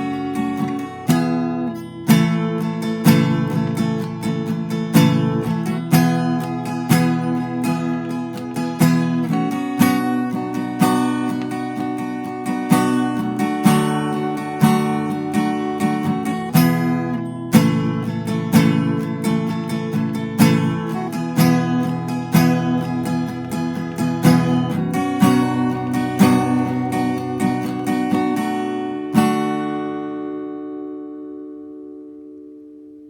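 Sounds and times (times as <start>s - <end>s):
acoustic guitar strumming chords: 0.0s - 33.0s.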